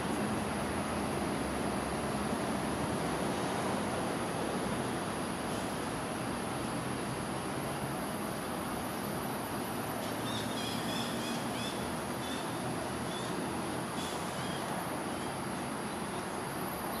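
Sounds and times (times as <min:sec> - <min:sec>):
high-pitched hiss: 0:00.0 - 0:17.0
bird chirping: 0:10.2 - 0:12.5.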